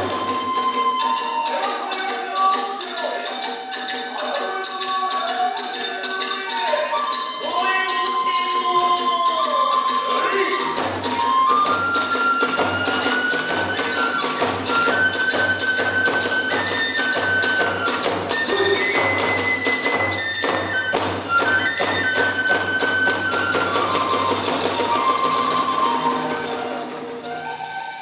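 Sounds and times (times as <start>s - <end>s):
bamboo flute melody: 0.0s - 28.0s.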